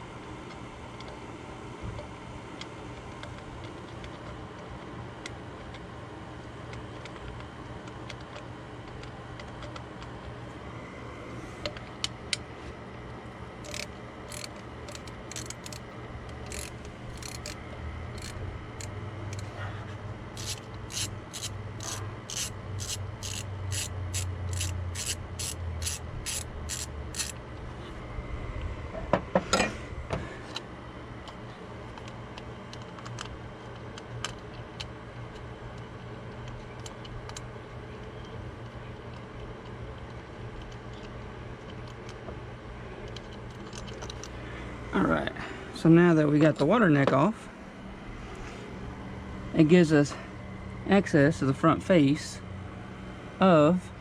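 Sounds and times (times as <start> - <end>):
ratchet wrench clicking: 13.6 - 19.5, 20.4 - 27.4.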